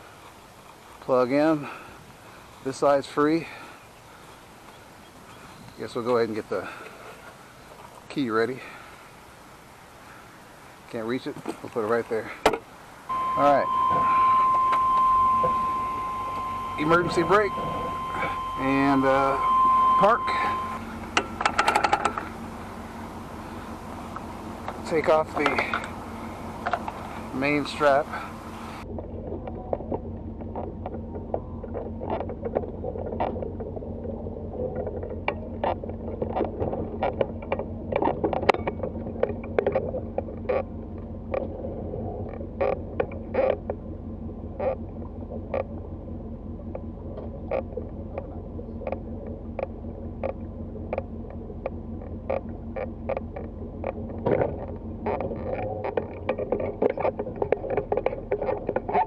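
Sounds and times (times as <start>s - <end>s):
vehicle engine idling: 0.0s - 59.0s
clicks and knocks of gear: 20.2s - 22.4s, 28.9s - 43.9s, 46.6s - 59.0s.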